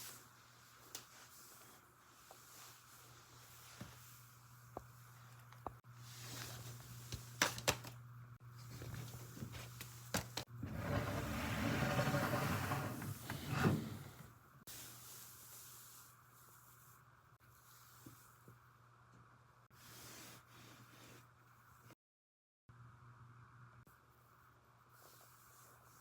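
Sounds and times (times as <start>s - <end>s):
filter sliding with rustling scrape: 10.6s - 14.3s.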